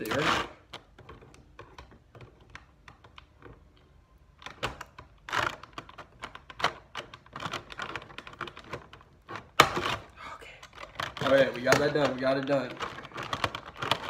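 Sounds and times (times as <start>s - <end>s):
plastic packaging clicks and crinkles: 0.0s - 14.0s.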